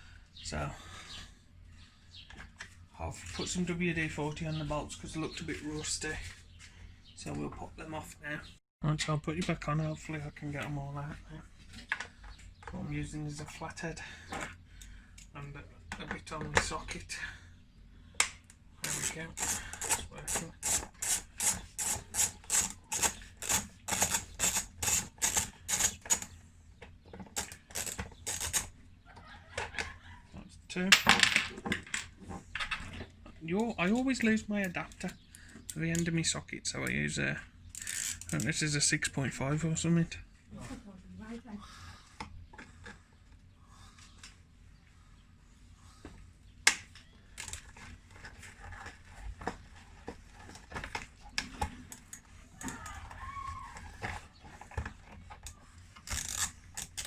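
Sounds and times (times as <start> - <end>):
ratchet wrench clicking: 18.8 - 26.3, 37.7 - 38.4, 56.1 - 57.0.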